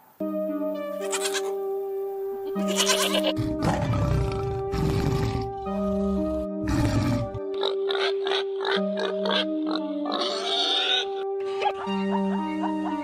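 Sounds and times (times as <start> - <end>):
goats bleating: 1.0 - 1.6, 2.6 - 3.4, 10.1 - 11.1.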